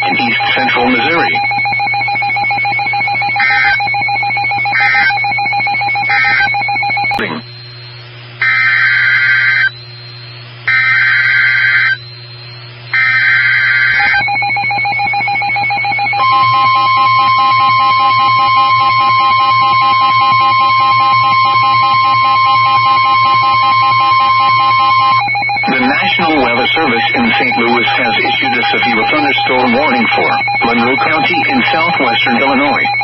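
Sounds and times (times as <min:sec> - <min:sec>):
warbling digital data bursts: 0:00.0 - 0:01.8, 0:24.5 - 0:33.0
steady warning alert tone: 0:00.0 - 0:07.6, 0:13.0 - 0:33.0
steady buzzing tone: 0:00.0 - 0:33.0
short beeps: 0:15.6 - 0:33.0.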